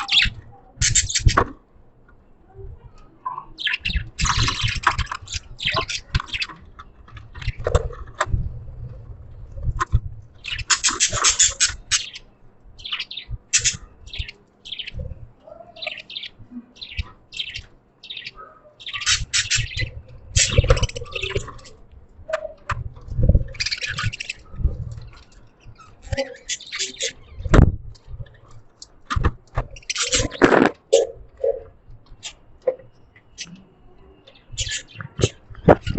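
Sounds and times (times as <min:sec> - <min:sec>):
budgerigars chirping: 0:00.0 - 0:01.4, 0:10.4 - 0:21.8, 0:23.5 - 0:24.5, 0:34.3 - 0:35.9.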